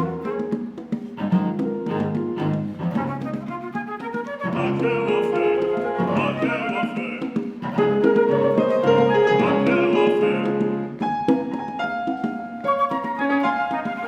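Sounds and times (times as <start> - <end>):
bowed cello: 0.0 - 6.9, 7.5 - 11.8
congas: 0.0 - 14.0
flute: 0.0 - 14.0
piano: 0.0 - 14.0.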